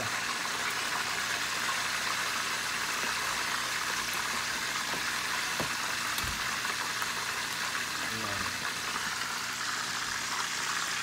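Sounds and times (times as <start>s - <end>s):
pork deep-frying sizzle: 0.0s - 11.0s
oil popping: 0.6s - 7.9s.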